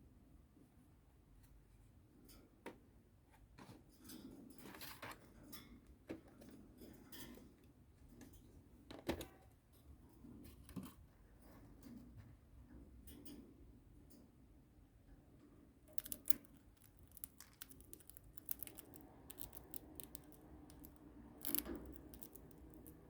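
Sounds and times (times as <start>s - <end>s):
birds pecking and crunching cornflakes: 15.9s - 23.0s.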